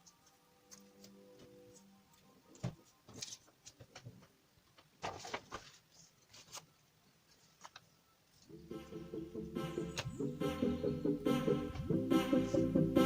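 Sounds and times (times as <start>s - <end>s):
background music: 0.0s - 3.2s, 8.4s - 13.0s
paper rustling and clicks: 2.5s - 4.1s, 4.7s - 6.7s, 7.3s - 8.5s.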